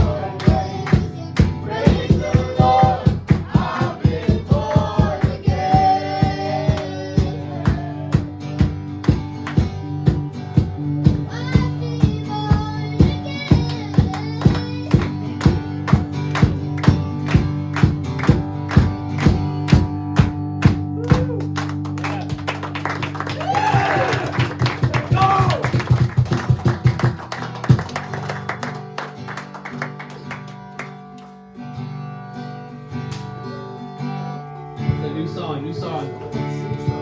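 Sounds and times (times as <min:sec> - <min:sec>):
person singing: 0:00.0 - 0:08.2
worship band music: 0:00.0 - 0:12.0, 0:12.7 - 0:29.4
drum beat: 0:00.0 - 0:21.5, 0:23.1 - 0:28.0.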